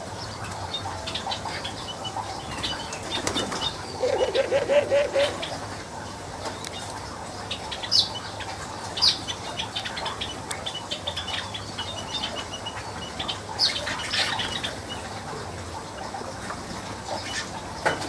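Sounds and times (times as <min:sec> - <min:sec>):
birds chattering: 0:00.0 - 0:18.0
sharp bird calls: 0:00.8 - 0:05.6.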